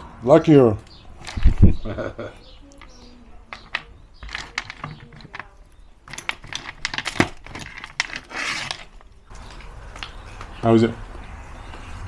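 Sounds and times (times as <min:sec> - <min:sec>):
nuts in shells clicking: 0:00.8 - 0:01.6, 0:02.7 - 0:10.2.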